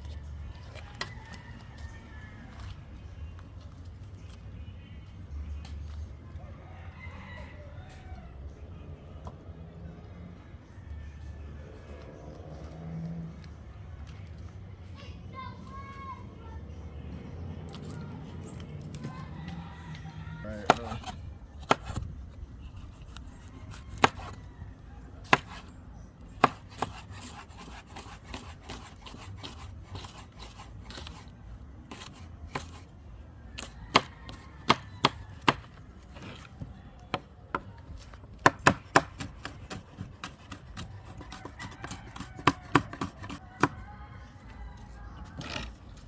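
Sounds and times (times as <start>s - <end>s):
knife chopping on cutting board: 26.4s - 31.0s, 38.4s - 43.7s.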